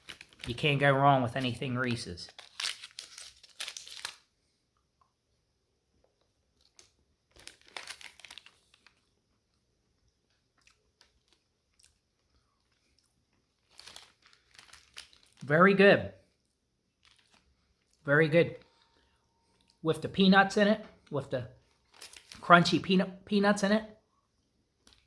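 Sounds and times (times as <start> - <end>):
wrapper crinkling: 0.0 - 4.3, 6.6 - 9.2, 10.9 - 15.5, 16.4 - 18.0, 21.6 - 22.5.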